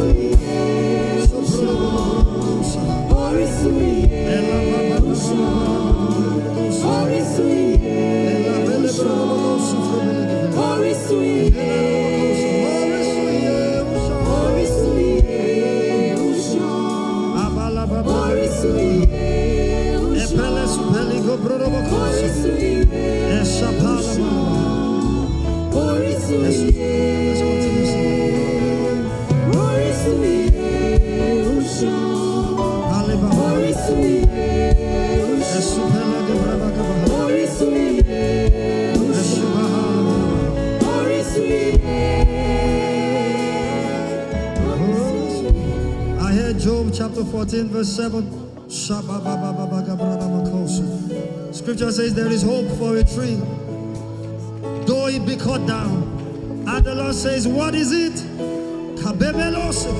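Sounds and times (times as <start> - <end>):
band accompaniment: 0.0 - 59.9
gospel worship music: 0.0 - 59.9.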